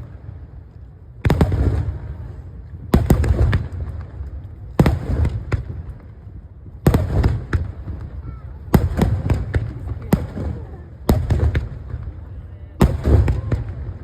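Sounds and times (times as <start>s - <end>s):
rumbling echo and crackle: 0.0s - 14.0s
firework booms: 1.2s - 14.0s.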